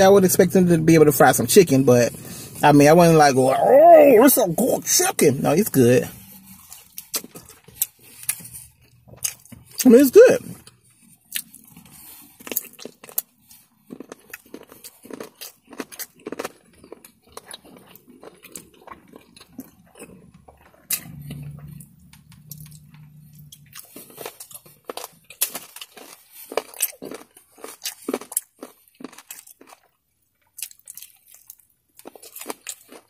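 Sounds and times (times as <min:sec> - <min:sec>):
person chewing crunchy chicken: 0:05.0 - 0:33.0
low steady hum: 0:19.4 - 0:24.7.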